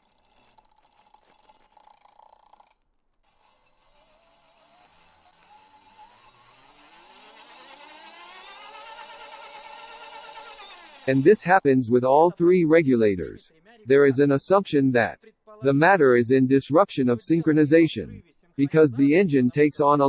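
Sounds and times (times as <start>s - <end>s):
electric motor whine: 3.3s - 11.4s.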